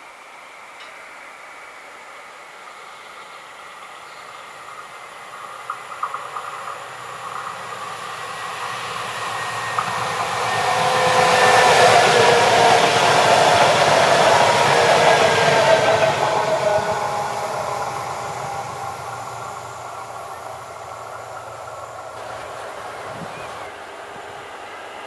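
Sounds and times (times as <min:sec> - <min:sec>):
electric train whine: 0:00.0 - 0:25.0
train wheels on rails: 0:00.5 - 0:25.0.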